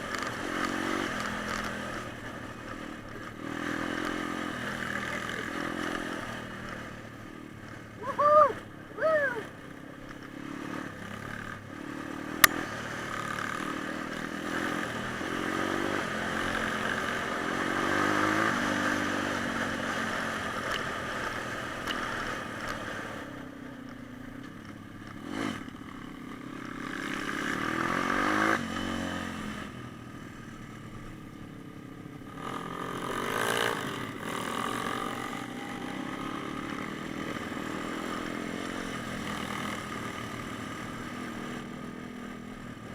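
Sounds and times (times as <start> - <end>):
motorbike engine revving: 0.0 - 9.5, 10.2 - 23.4, 25.0 - 29.9, 32.2 - 42.9
sharp click: 12.4 - 12.6.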